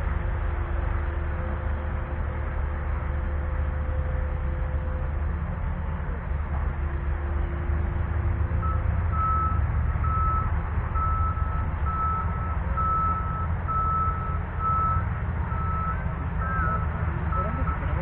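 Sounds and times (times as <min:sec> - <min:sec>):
steady low rumble: 0:00.0 - 0:18.0
reversing alarm beeping: 0:08.6 - 0:17.9.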